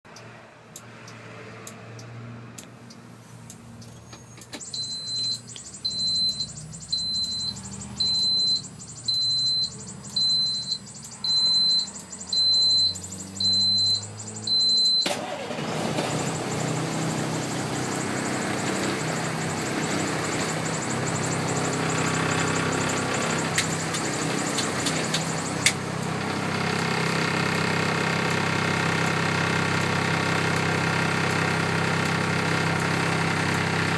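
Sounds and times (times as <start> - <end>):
diesel truck engine starting and idling: 0.1 - 33.9
warning buzzer beeping: 4.6 - 25.8.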